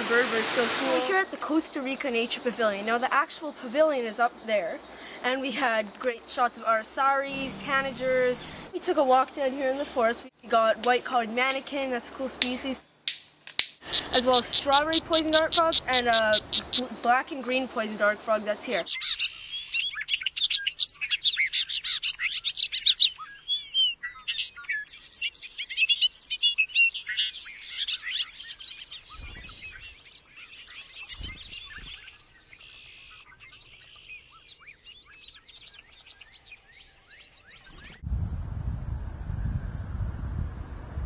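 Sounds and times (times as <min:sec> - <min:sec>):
many birds chirping: 0:06.4 - 0:08.7, 0:13.8 - 0:38.0.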